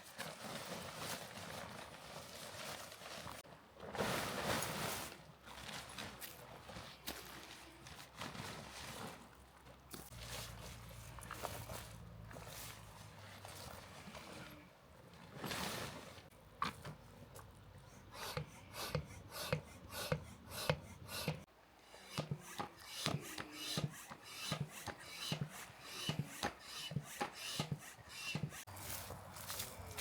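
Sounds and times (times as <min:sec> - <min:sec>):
crunching footsteps: 0:28.5 - 0:30.0.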